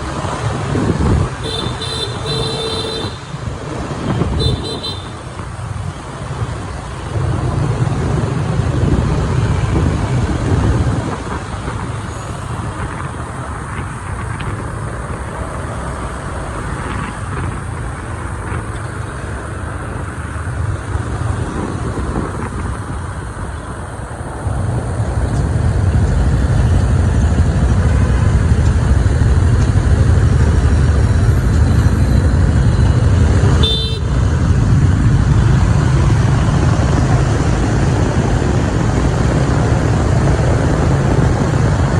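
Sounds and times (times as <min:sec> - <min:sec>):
city traffic: 0:00.0 - 0:41.9
motorbike engine rumble: 0:00.0 - 0:41.9.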